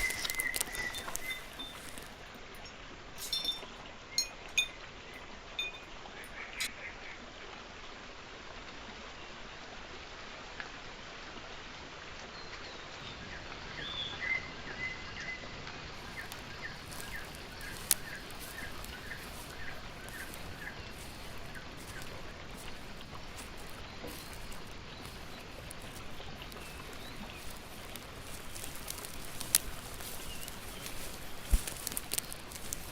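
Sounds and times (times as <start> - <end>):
small birds chirping: 0.0 - 2.3, 16.0 - 32.9.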